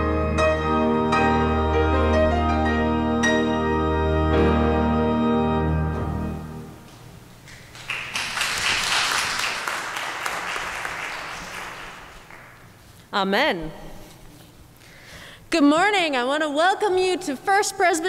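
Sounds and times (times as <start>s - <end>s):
congregation applauding: 7.4s - 12.9s.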